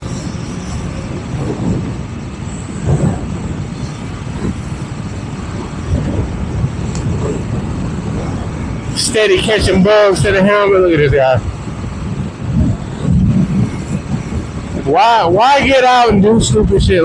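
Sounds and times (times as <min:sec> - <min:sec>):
motorcycle engine running: 0:00.0 - 0:09.0
wind rush: 0:00.0 - 0:17.0.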